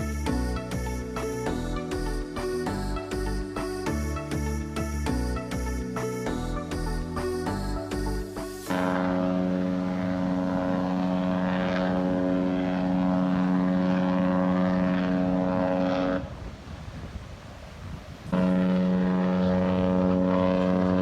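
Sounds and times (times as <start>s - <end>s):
ship's horn blast: 8.7s - 16.4s, 18.3s - 21.0s.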